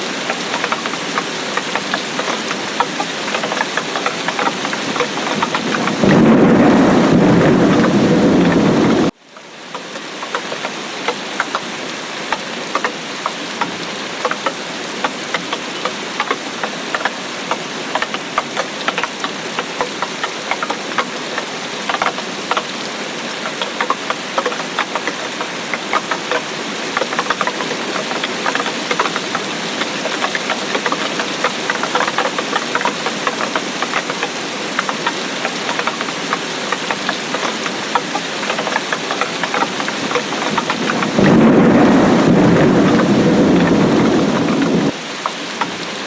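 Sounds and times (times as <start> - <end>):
rain pattering: 0.0 - 46.0
thunder rumble: 4.9 - 9.1, 40.0 - 44.9.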